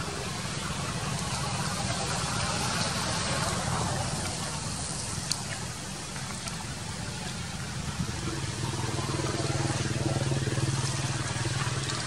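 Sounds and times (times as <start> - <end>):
constant background hiss: 0.0 - 12.0
low engine hum: 0.0 - 12.0.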